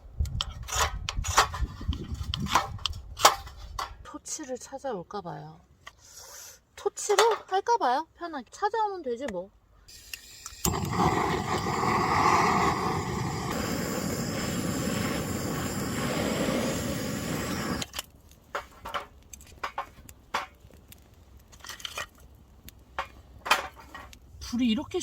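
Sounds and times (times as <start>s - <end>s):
gas torch flame hissing: 9.9s - 18.0s
fire clicks and crackles: 10.0s - 25.0s.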